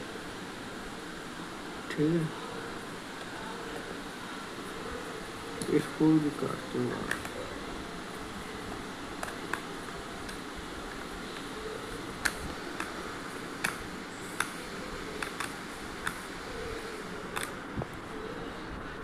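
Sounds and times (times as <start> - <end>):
steady background hiss: 0.0 - 19.0
small sharp plastic clicks: 15.2 - 16.2.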